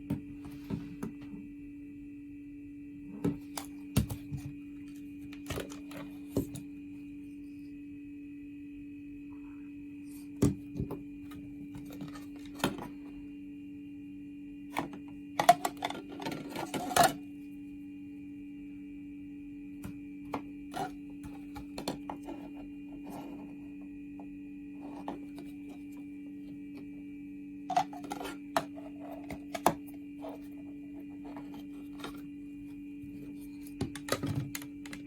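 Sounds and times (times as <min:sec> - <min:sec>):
steady low hum: 0:00.0 - 0:35.0
objects being handled: 0:14.7 - 0:17.2, 0:19.8 - 0:23.7, 0:24.8 - 0:26.8, 0:27.7 - 0:35.0.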